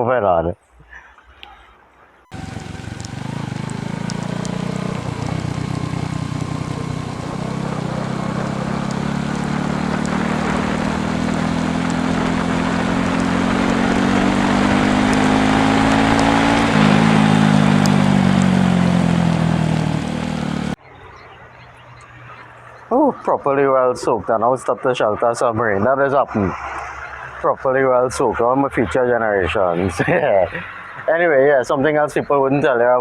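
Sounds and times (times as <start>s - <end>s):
wind and road noise: 0.7s - 33.0s
motorcycle engine accelerating: 2.3s - 23.2s.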